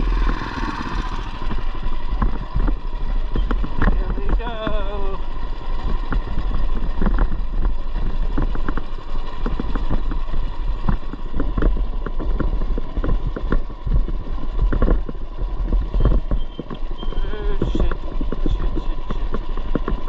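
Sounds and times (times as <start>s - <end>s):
knocks and rattles: 0.0s - 20.0s
mini bike engine rumble: 0.0s - 20.0s.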